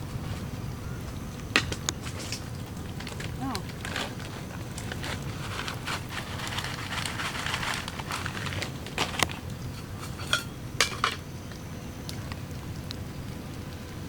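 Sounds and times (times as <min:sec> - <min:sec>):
rain pattering: 0:00.0 - 0:14.0.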